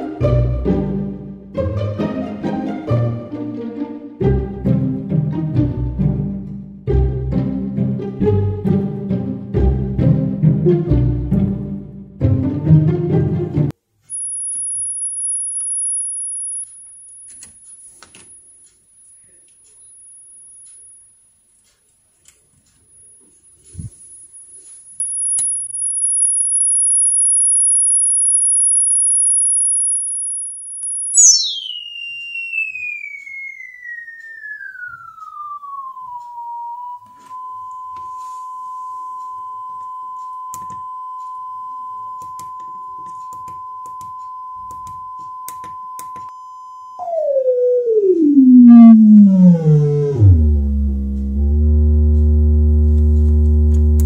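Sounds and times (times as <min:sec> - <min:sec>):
sine wave test tone: 0:14.0 - 0:21.8, 0:22.6 - 0:54.0.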